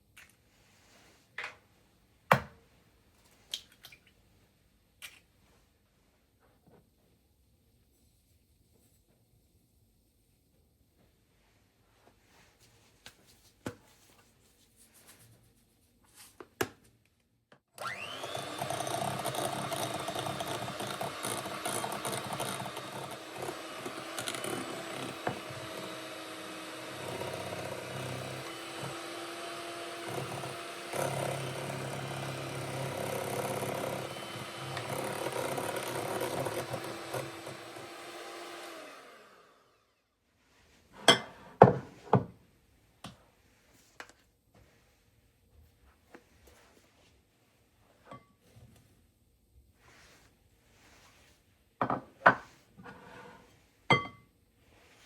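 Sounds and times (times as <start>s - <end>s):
electric blender running: 17.8s - 39.9s.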